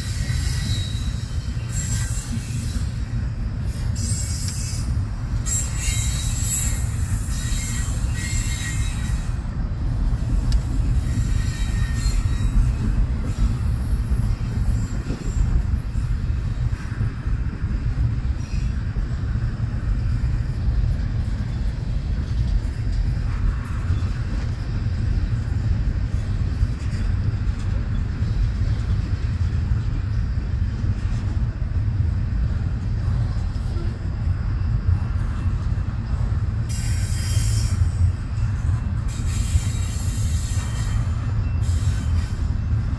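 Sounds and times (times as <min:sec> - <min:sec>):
high-pitched wheel squeal: 0:00.0 - 0:09.4, 0:10.2 - 0:16.1, 0:36.7 - 0:38.1, 0:39.1 - 0:42.6
freight train rumbling past: 0:00.0 - 0:42.9.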